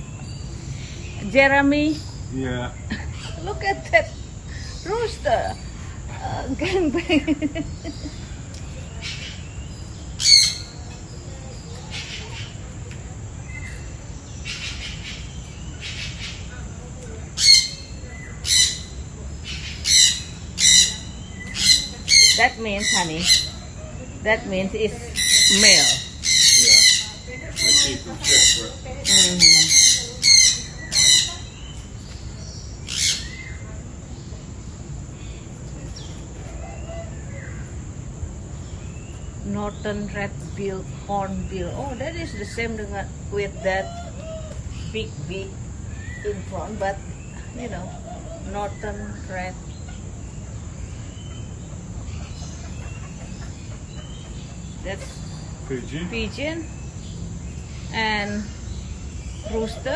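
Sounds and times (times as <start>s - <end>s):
birds calling: 0.0s - 59.9s
bird squawk: 10.2s - 10.8s, 17.4s - 31.8s.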